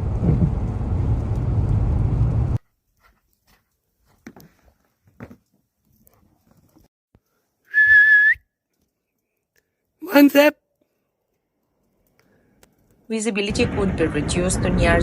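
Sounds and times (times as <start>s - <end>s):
low rumbling noise: 0.0s - 2.6s, 13.5s - 15.0s
short whistled tone: 7.7s - 8.6s
faint clicks: 10.8s - 13.0s.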